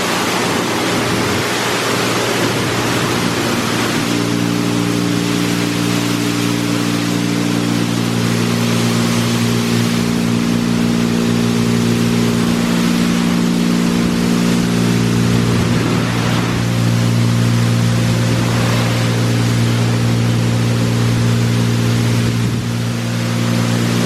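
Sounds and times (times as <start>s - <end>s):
mechanical hum: 0.0s - 24.0s
water spraying onto car: 0.0s - 24.0s.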